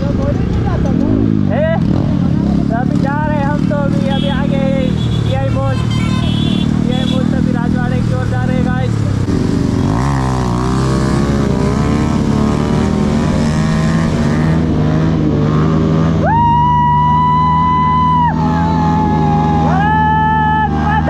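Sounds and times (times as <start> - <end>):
motorcycle engines running: 0.0 - 21.0.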